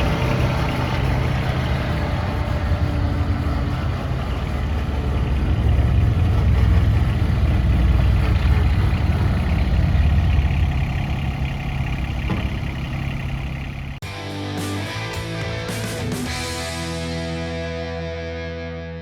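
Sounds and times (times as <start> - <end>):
tractor diesel engine running: 0.0 - 14.1.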